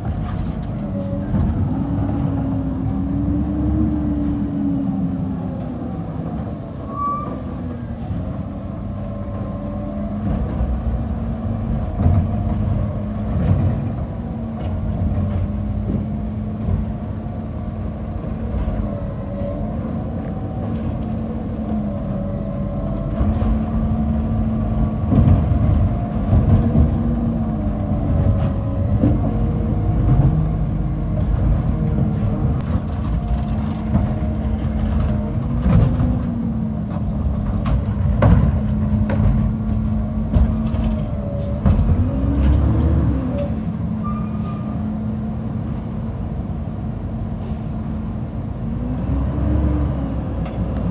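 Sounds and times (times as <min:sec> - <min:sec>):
knocks and clunks: 0:00.0 - 0:02.6, 0:10.2 - 0:17.1, 0:22.9 - 0:43.2
garbage truck engine drone: 0:00.0 - 0:50.9.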